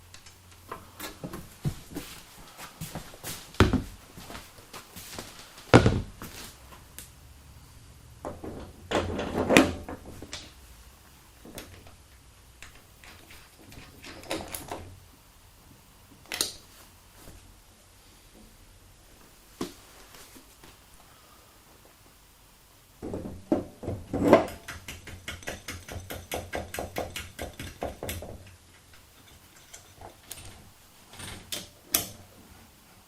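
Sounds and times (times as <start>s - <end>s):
knocks and clunks: 8.2s - 10.5s, 23.0s - 29.0s.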